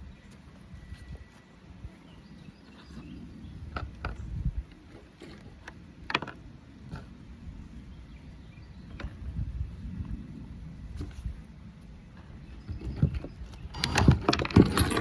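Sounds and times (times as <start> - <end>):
low steady rumble: 0.0 - 13.9
hardware clicks and knocks: 5.2 - 6.4, 12.7 - 15.0.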